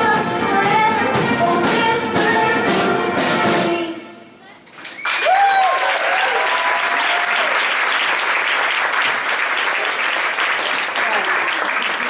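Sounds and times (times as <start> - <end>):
live song: 0.0 - 4.4
audience applauding: 4.8 - 12.0
voices whooping: 5.2 - 7.6.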